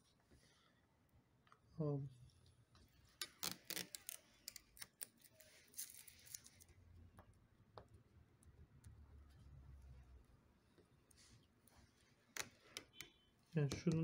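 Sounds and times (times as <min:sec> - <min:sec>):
clicks and scratching of tape scraping: 0:03.1 - 0:06.8.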